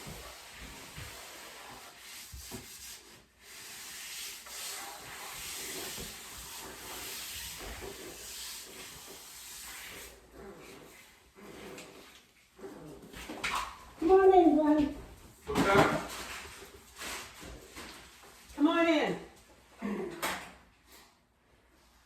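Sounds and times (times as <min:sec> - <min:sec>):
sanding wood: 0:00.0 - 0:10.2.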